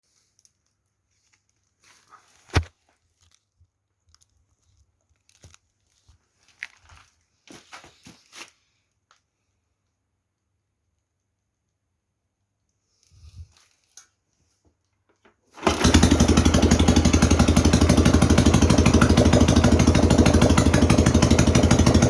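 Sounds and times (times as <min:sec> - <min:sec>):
rustling handling noises: 0:00.0 - 0:09.4, 0:12.8 - 0:15.6.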